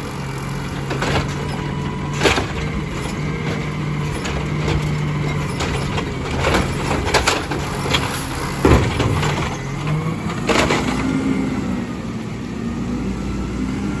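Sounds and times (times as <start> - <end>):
garbage truck diesel engine: 0.0 - 14.0
loud clanks and bangs: 0.8 - 11.1.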